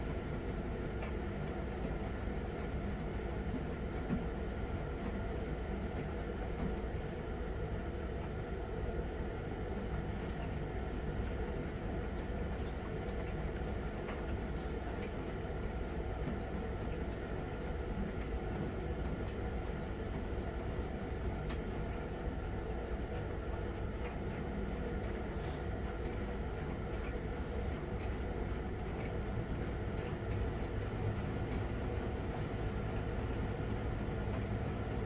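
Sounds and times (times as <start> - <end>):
washing machine motor and drum rumble: 0.0 - 35.0
water swishing in washing machine: 29.0 - 35.0.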